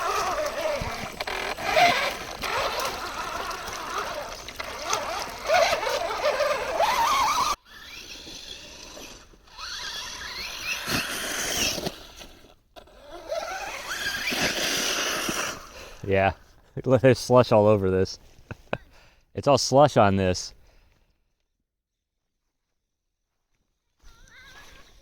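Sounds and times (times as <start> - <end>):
toy truck motor whining: 0.0 - 16.0.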